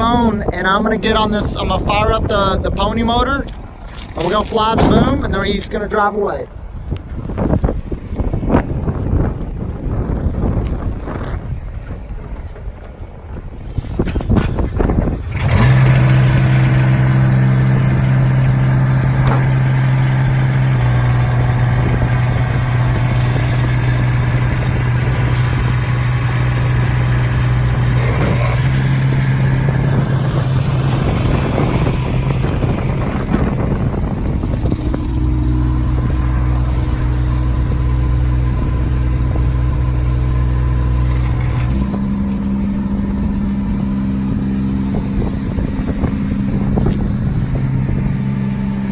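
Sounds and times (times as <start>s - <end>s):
diesel engine cranking and running: 9.8s - 48.9s.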